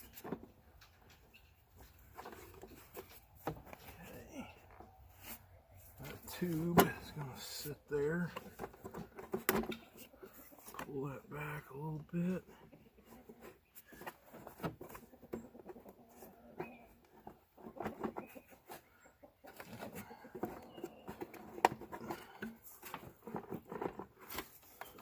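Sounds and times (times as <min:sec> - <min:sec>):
chickens clucking: 0:12.7 - 0:23.7.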